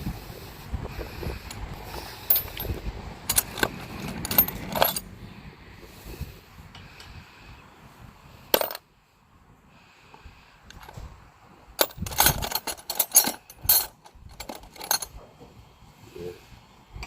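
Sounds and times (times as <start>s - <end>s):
metal tools clinking in toolbox: 2.2s - 5.1s, 8.6s - 8.8s, 11.8s - 15.2s.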